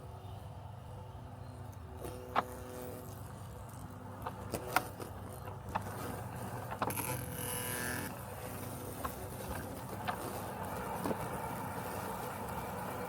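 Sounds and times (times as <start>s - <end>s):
robotic lawn mower humming: 1.8s - 13.0s
sharp clicks and knocks: 2.0s - 10.4s.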